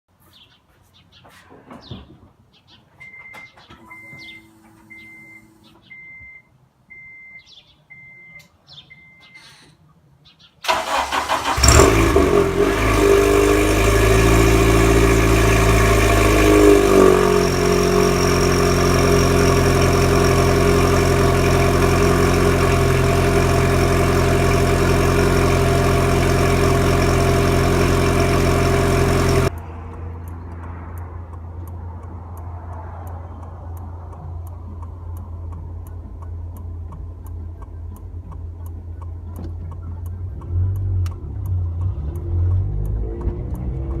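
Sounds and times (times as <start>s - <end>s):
car engine starting and idling: 10.6s - 44.0s.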